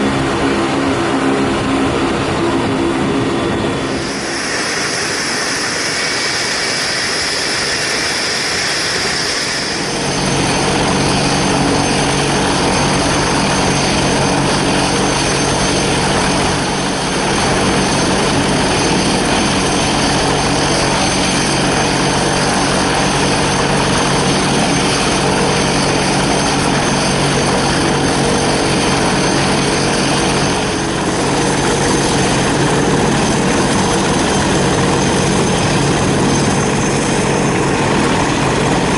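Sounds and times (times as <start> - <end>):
high turbine whine: 0.0 - 38.9
turboprop propeller drone: 0.0 - 38.9.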